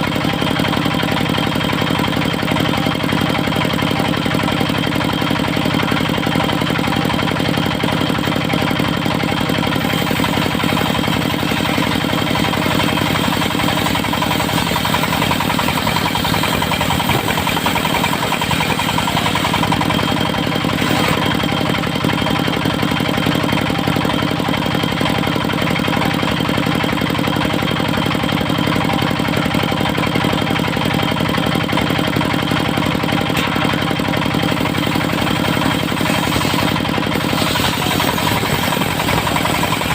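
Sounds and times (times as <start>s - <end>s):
sawmill engine running steadily: 0.0s - 39.9s.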